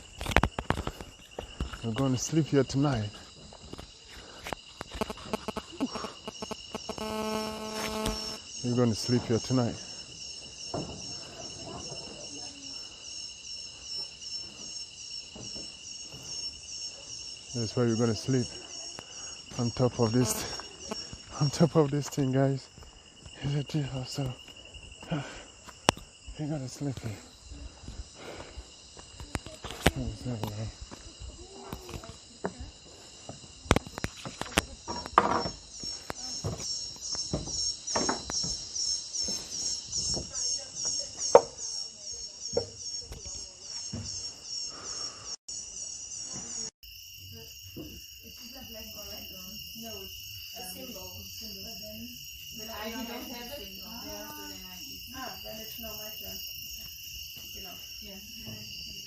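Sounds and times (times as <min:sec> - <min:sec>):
insect chorus trilling: 0:00.0 - 0:59.0.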